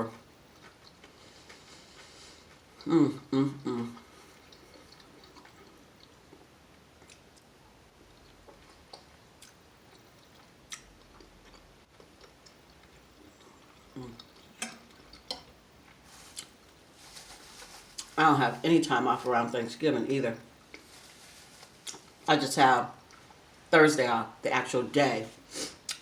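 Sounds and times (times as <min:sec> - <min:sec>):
close-up chewing: 0:00.5 - 0:16.8.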